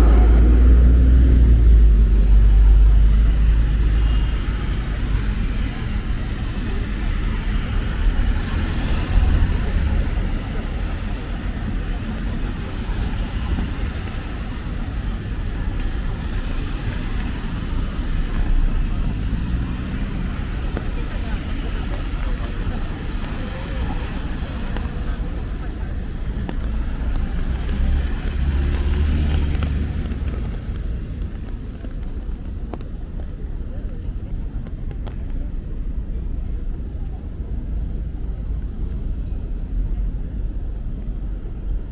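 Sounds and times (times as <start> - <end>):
rain hissing: 0.0 - 32.7
road traffic rumble: 0.0 - 41.9.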